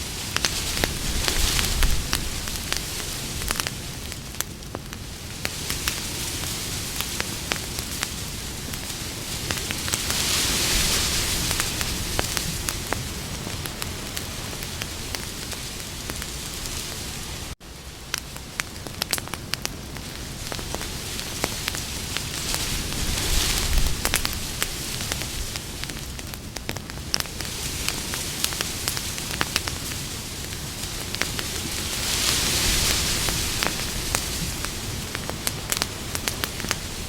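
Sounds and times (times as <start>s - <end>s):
hiss of campfire flames: 0.0s - 37.0s
wood crackling and popping: 0.0s - 37.0s.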